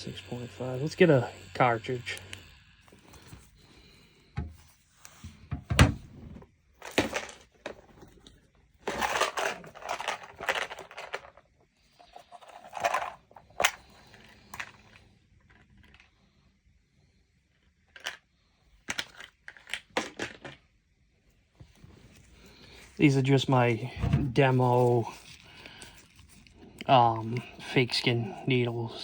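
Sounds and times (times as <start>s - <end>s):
rustling and crinkling: 2.9s - 16.1s, 21.2s - 29.0s.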